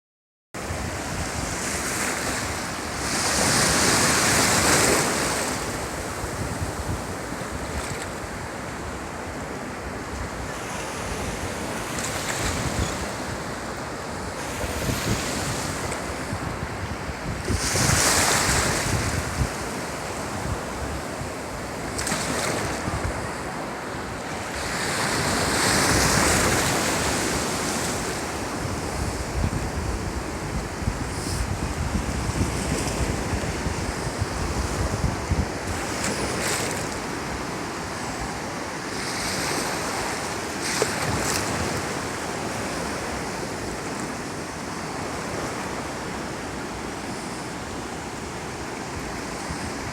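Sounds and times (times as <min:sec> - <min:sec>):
ocean waves breaking on beach: 0:00.6 - 0:49.9
wind buffeting microphone: 0:10.0 - 0:13.7, 0:14.3 - 0:23.8, 0:24.4 - 0:38.4.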